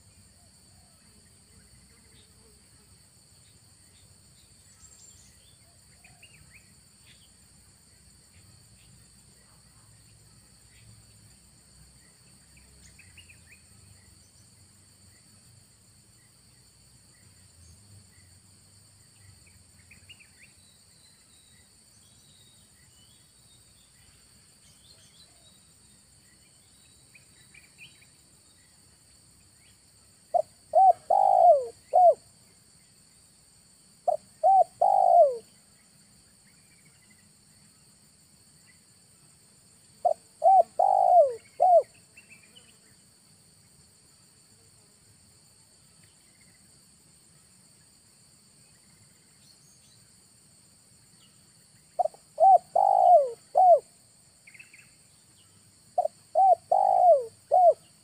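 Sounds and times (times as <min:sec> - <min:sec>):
dove cooing: 0:30.4 - 0:32.2, 0:34.1 - 0:35.5, 0:40.0 - 0:41.9, 0:52.0 - 0:53.9, 0:56.0 - 0:57.8.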